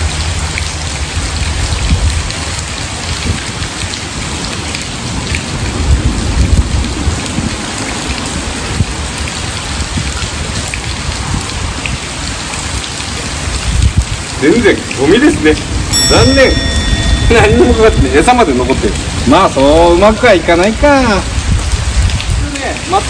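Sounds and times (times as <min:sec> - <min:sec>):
heavy rain pouring: 0:00.0 - 0:23.0.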